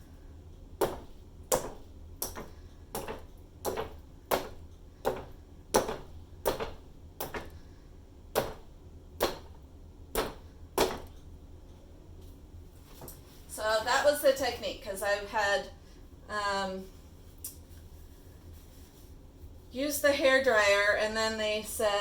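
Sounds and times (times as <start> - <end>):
mallet knocking on board: 9.2 - 11.1.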